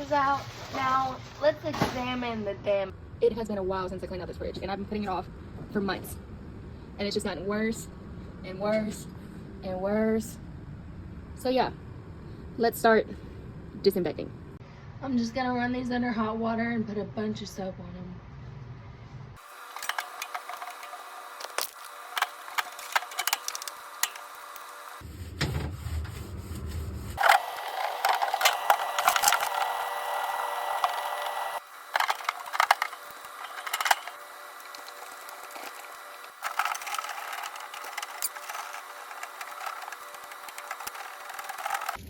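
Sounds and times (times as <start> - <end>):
plastic and glass clattering: 19.7 - 24.3, 31.9 - 42.0.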